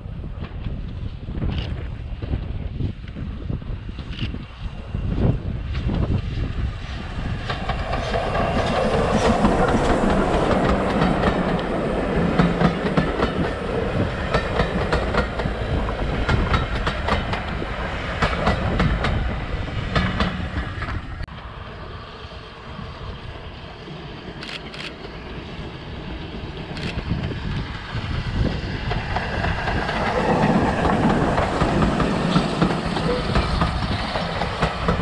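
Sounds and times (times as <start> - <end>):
train rumble: 0.0 - 35.0
train wheels clacking over rail joints: 7.3 - 21.0, 28.8 - 35.0.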